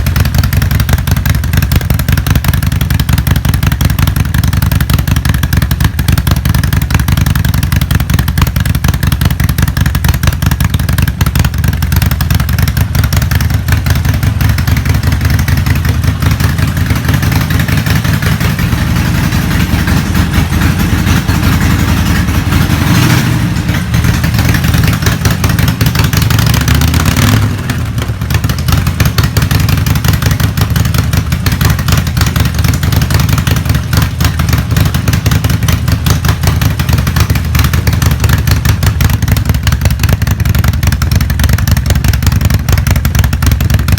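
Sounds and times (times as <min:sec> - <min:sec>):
motorcycle engine idling: 0:00.0 - 0:43.9.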